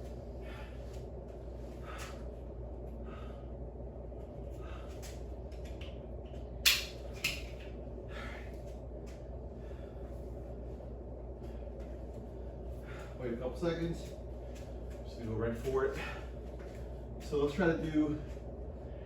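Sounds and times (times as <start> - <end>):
low background hum: 0.0 - 19.0
faint breaths: 0.1 - 5.2, 8.0 - 8.8, 9.4 - 15.1, 15.8 - 17.2.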